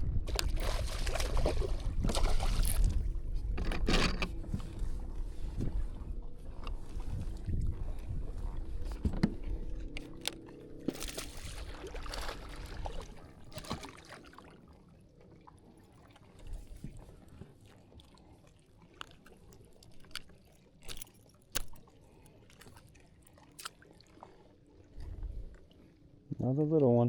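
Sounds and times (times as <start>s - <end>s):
water splashing and trickling: 0.1s - 3.4s, 4.6s - 26.2s
small clicks: 19.0s - 21.8s.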